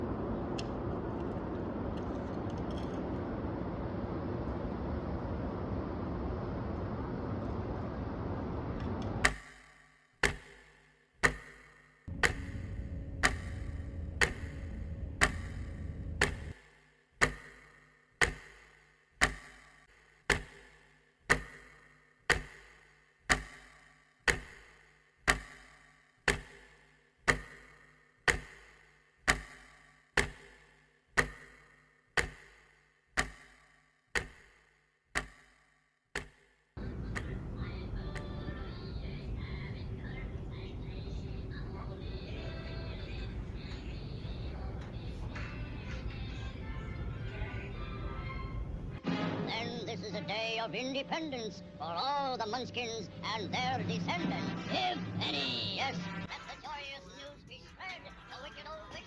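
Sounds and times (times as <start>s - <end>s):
low rushing noise: 0.0s - 9.2s.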